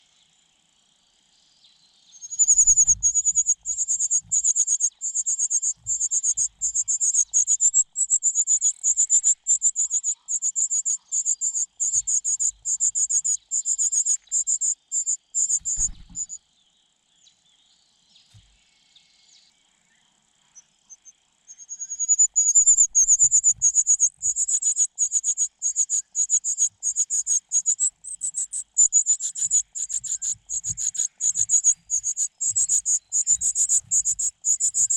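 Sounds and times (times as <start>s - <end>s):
nestling birds calling: 2.2s - 16.4s, 21.7s - 34.9s.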